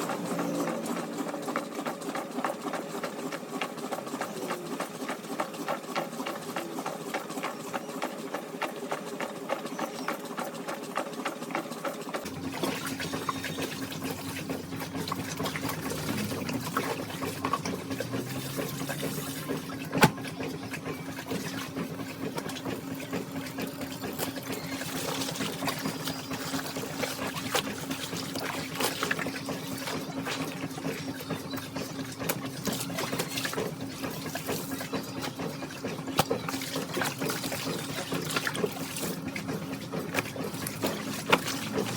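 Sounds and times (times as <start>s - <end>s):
washing machine rattling: 0.0s - 41.9s
water rushing in: 12.3s - 41.9s.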